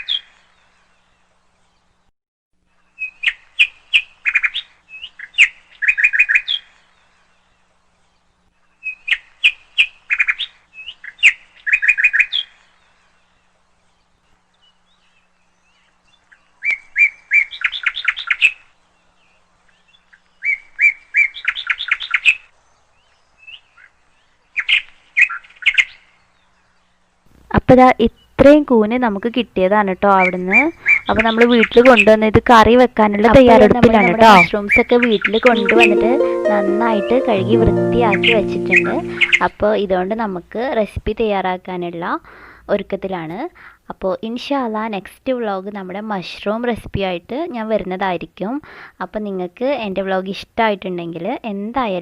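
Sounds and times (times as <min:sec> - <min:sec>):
songbird chirping: 0:35.1 - 0:39.6.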